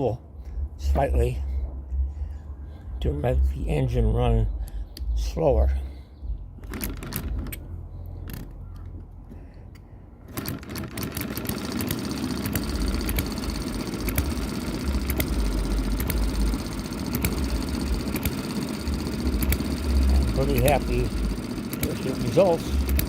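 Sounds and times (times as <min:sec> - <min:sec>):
model engine running: 0:06.6 - 0:07.6, 0:10.3 - 0:23.0
sharp clicks: 0:09.7 - 0:23.0.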